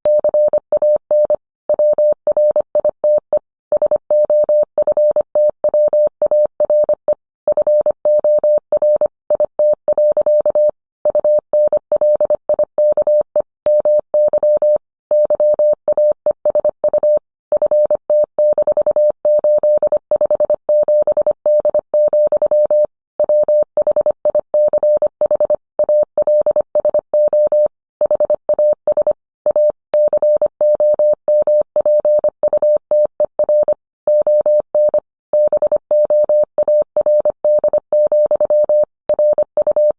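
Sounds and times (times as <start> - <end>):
morse code tone: 27.2 - 39.9.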